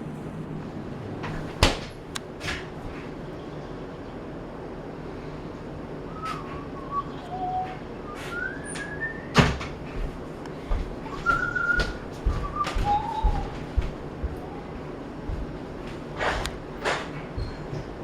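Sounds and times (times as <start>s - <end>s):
short whistled notes: 6.1s - 9.4s, 11.1s - 13.5s.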